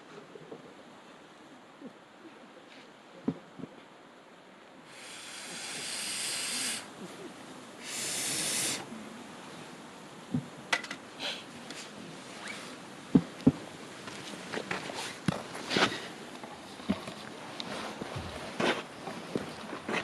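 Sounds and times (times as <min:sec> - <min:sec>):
campfire hissing: 0:04.7 - 0:17.9.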